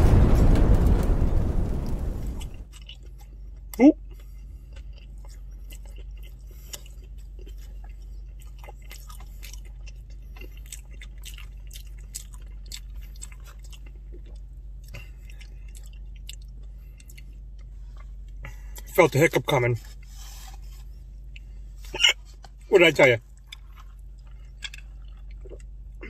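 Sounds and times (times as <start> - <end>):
steady low hum: 0.0 - 26.0
person chewing: 4.1 - 18.8, 23.2 - 26.0.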